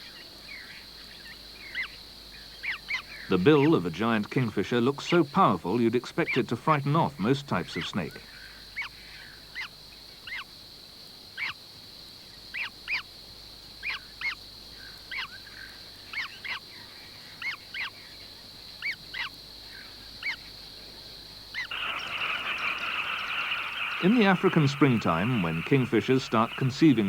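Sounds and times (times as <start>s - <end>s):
high-pitched wildlife ambience hiss: 0.0s - 27.0s
dense chattering noise: 3.3s - 8.2s, 21.7s - 27.0s
short animal calls: 21.6s - 27.0s.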